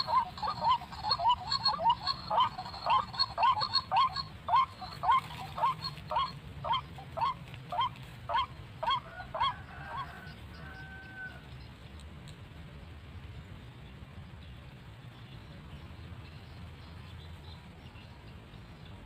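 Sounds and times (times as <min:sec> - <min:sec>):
waterhen calling hoarse notes: 0:00.0 - 0:11.4.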